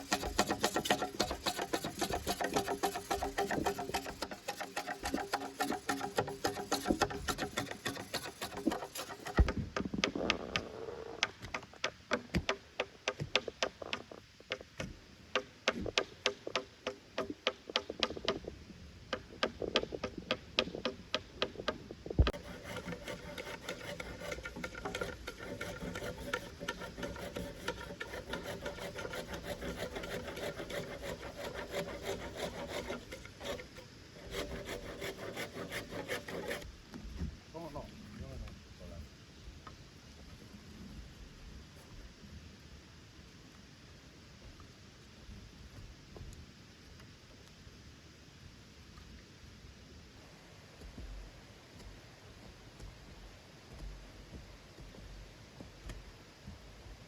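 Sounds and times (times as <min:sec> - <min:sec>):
rubbing strokes on wood: 0:00.0 - 0:11.2, 0:22.2 - 0:36.7.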